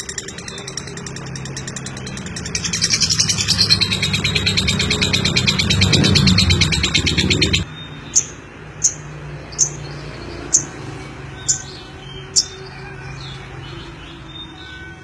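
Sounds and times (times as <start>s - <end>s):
bird giving sharp high chirps: 0.0s - 10.7s.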